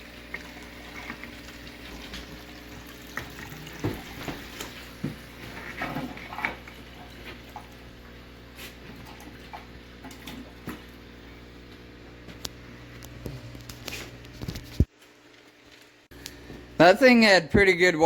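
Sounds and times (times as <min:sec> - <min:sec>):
water gurgling through hose: 0:00.0 - 0:08.0.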